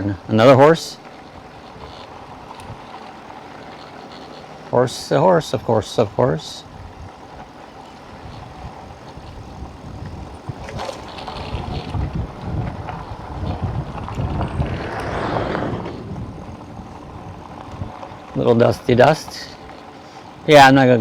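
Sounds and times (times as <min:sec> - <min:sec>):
tyres rolling on dirt road: 0:00.0 - 0:21.0
wind buffeting microphone: 0:08.1 - 0:18.8.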